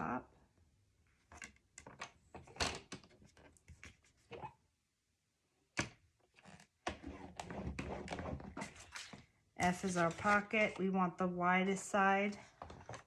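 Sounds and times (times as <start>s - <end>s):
cardstock scrapes and taps: 7.0s - 10.8s.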